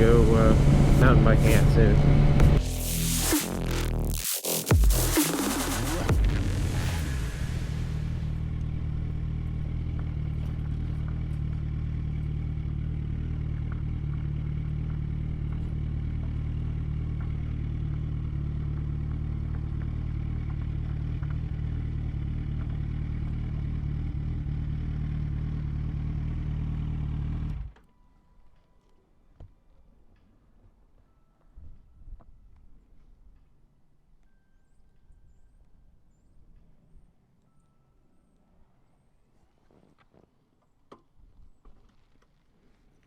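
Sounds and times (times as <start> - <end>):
motorcycle engine running: 0.0 - 27.8.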